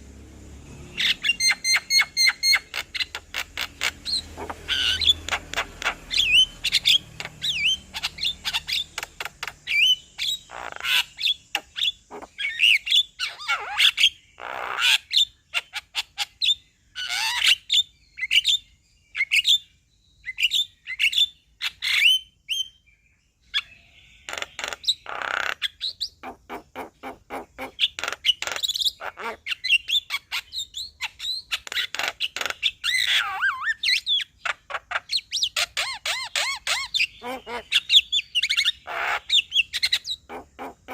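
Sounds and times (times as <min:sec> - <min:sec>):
bird singing whistles and chatter: 0:01.0 - 0:15.3.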